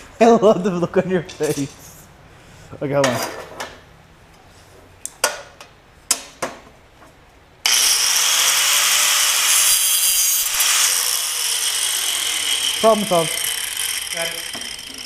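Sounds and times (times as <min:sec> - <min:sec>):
angle grinder cutting metal: 0:07.6 - 0:15.0.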